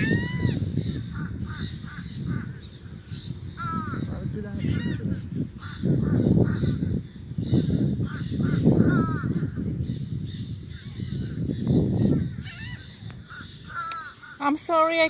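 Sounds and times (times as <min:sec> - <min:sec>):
parrots squawking: 0:00.0 - 0:09.7, 0:10.7 - 0:14.7.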